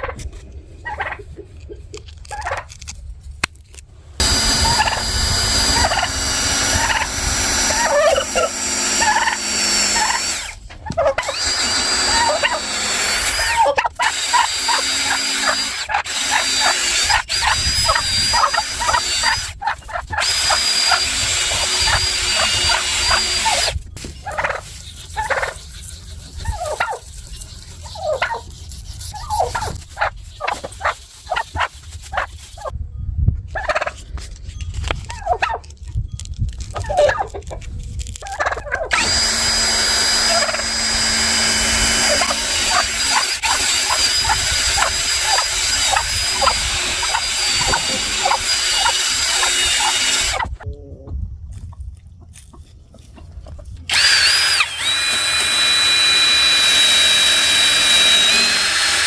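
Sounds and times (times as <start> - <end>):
power drill whining: 4.1 - 19.6, 20.2 - 24.2, 38.9 - 50.6, 53.9 - 59.0
rubbing strokes: 24.0 - 32.7.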